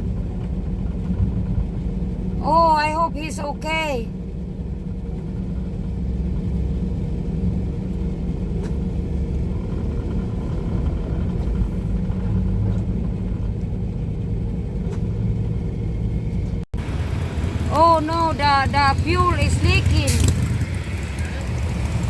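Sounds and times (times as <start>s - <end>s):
road noise: 0.0s - 22.0s
truck engine rumble: 0.0s - 22.0s.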